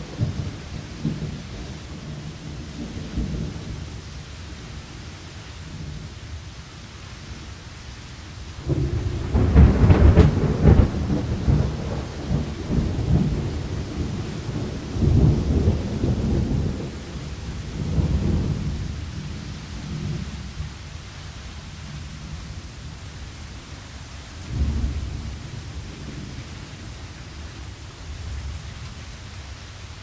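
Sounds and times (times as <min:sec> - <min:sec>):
thunder rumbling: 0:00.0 - 0:04.0, 0:08.6 - 0:20.7, 0:24.4 - 0:28.6
steady rain: 0:00.0 - 0:30.0.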